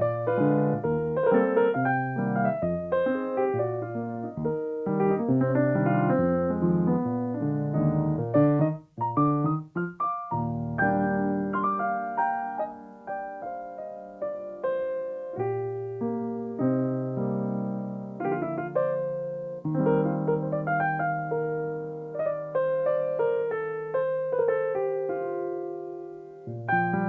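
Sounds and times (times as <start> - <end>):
solo piano playing: 0.0 - 27.0.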